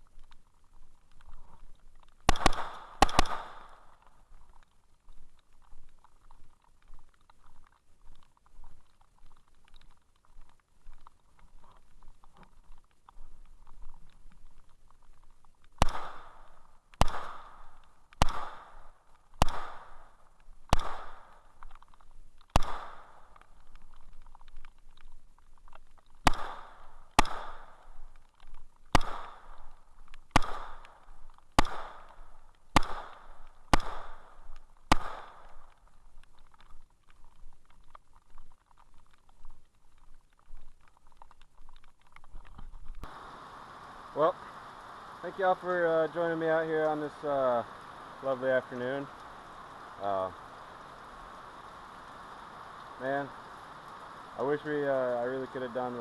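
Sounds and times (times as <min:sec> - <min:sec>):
gunshots with ringing echo: 0:02.3 - 0:03.8, 0:15.8 - 0:16.4, 0:17.0 - 0:18.8, 0:19.4 - 0:20.1, 0:20.7 - 0:21.3, 0:22.6 - 0:23.1, 0:26.2 - 0:27.7, 0:28.9 - 0:29.4, 0:30.4 - 0:30.8, 0:31.6 - 0:32.1, 0:32.8 - 0:34.3, 0:34.9 - 0:35.4.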